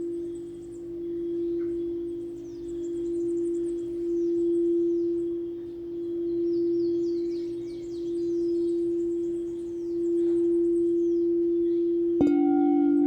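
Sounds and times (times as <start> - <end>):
faint high chirps: 0.0 - 13.0
singing bowl low tone: 0.0 - 13.0.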